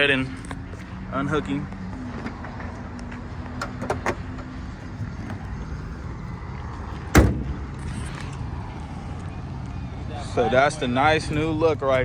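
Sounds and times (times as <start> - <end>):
car hood slamming: 7.1 - 7.7.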